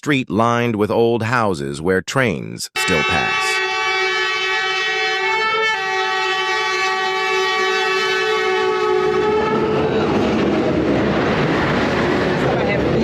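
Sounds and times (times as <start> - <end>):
train horn two-tone blast: 2.8 - 10.1
train passing close by: 3.3 - 13.0.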